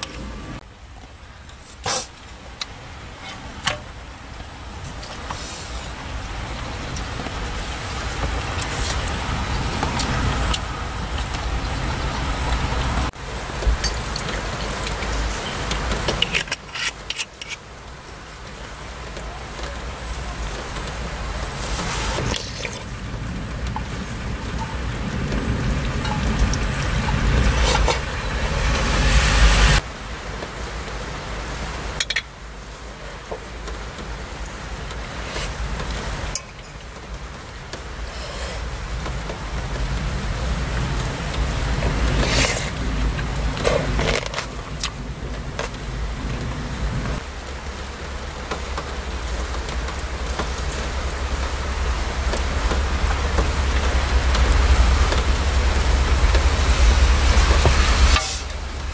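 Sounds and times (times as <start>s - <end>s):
heavy rain drumming: 0.0s - 58.9s
deep rumble: 22.2s - 29.8s.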